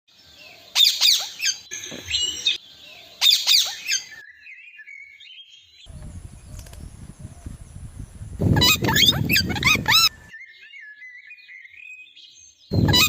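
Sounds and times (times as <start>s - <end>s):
parrots squawking: 8.5s - 10.2s, 12.7s - 13.0s.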